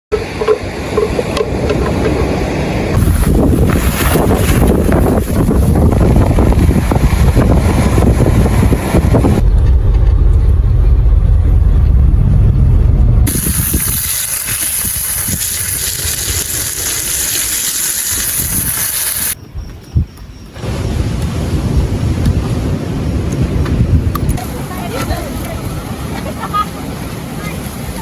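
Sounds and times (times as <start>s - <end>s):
surf breaking: 0.2s - 11.6s
wind buffeting microphone: 0.2s - 28.0s.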